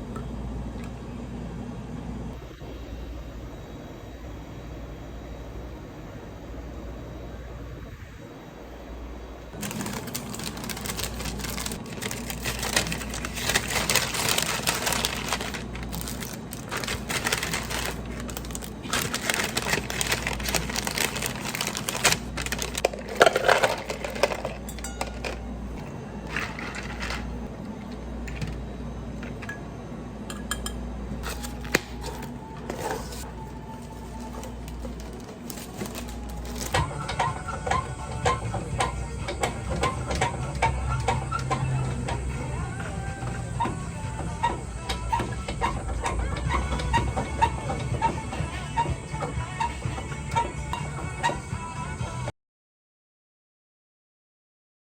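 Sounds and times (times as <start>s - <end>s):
steady low hum: 0.0s - 52.3s
dishes and utensils clinking: 22.8s - 27.3s, 30.3s - 30.8s
soft background music: 31.2s - 52.3s.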